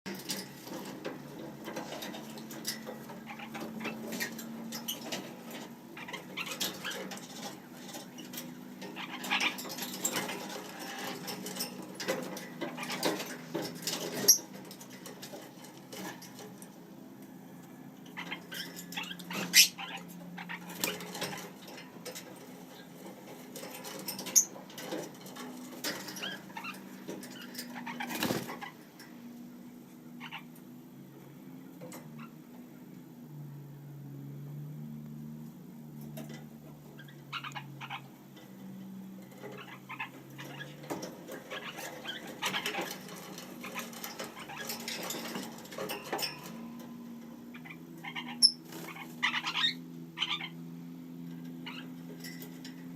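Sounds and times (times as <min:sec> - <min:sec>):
parakeets chirping and chattering: 0:00.1 - 0:16.7, 0:18.0 - 0:29.2, 0:30.0 - 0:30.9, 0:31.9 - 0:32.5, 0:36.1 - 0:52.9
clicks and scratching: 0:00.1 - 0:16.8, 0:39.2 - 0:47.0.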